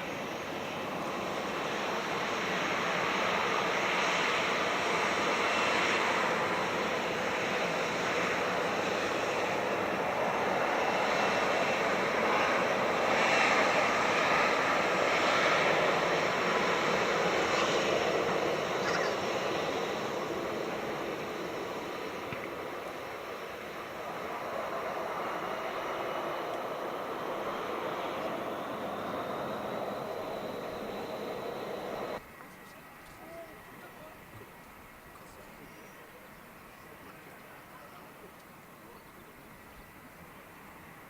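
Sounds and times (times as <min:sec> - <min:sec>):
jet engine roar: 0:00.0 - 0:32.7.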